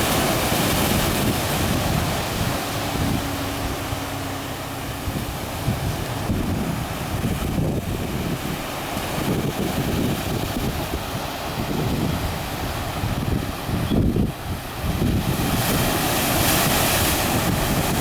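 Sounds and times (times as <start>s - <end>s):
sea surf against concrete: 0.0s - 18.0s
wind buffeting microphone: 0.0s - 18.0s.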